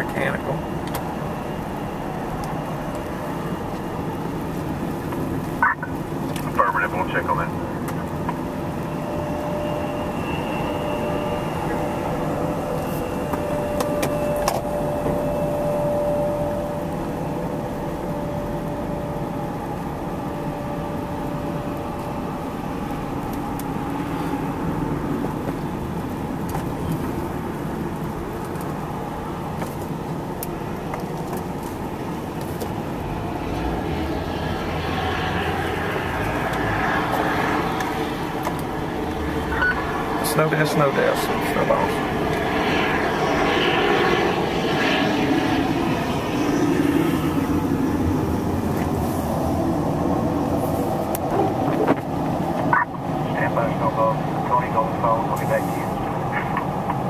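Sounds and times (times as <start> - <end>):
vehicle running rumble: 0.0 - 43.6
faint steady tone: 8.5 - 21.6.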